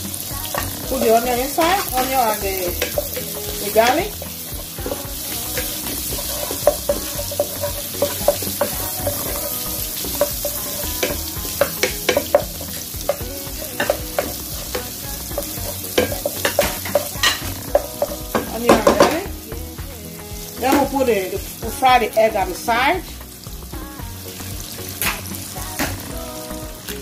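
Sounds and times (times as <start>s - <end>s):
onion and garlic sizzling in butter: 0.0s - 27.0s
wooden spatula scraping a pan: 0.5s - 19.2s.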